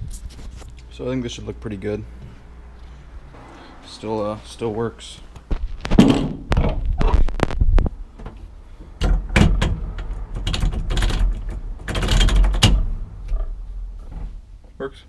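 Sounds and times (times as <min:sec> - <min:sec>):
sharp knocks and clicks: 0:05.4 - 0:14.3.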